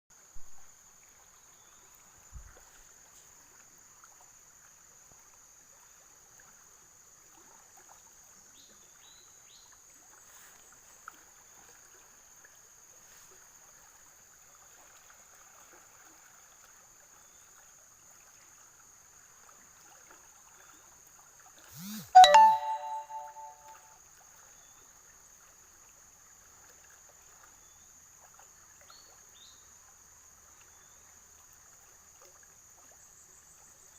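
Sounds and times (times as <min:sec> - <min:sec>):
bright metallic chime: 0:21.8 - 0:23.8.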